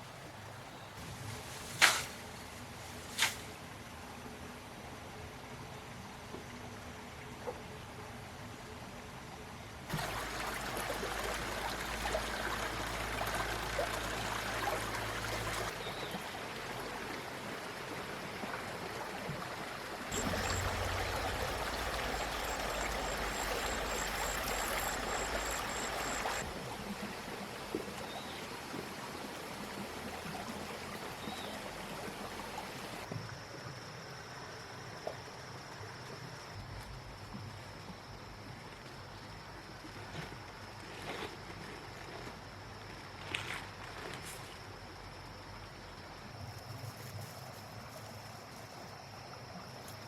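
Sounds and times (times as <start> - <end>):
running water: 9.8 - 33.1
low hum: 20.2 - 26.4.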